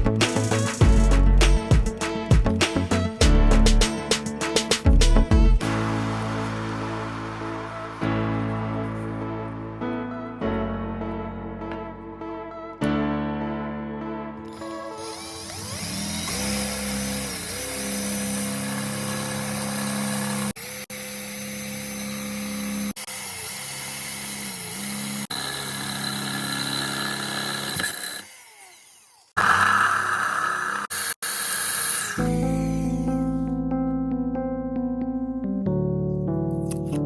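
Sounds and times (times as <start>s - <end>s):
electric power tool running: 14.5s - 33.5s.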